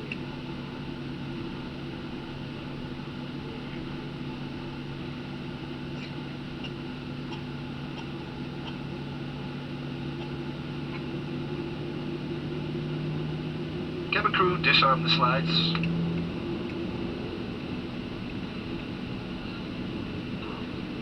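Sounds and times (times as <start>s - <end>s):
aircraft engines idling: 0.0s - 21.0s
cabin air conditioning: 0.0s - 21.0s
low hum: 9.3s - 21.0s.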